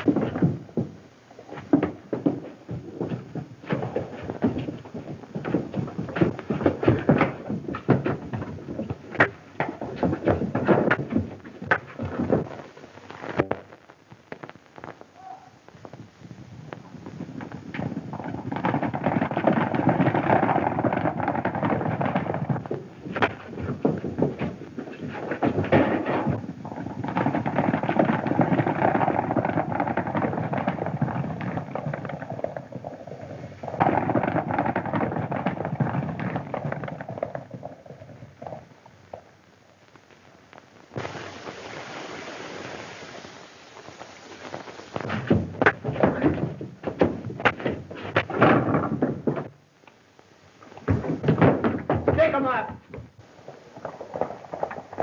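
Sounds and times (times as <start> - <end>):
film soundtrack hiss: 0.0 - 55.0
galloping hoofbeats: 16.8 - 37.7.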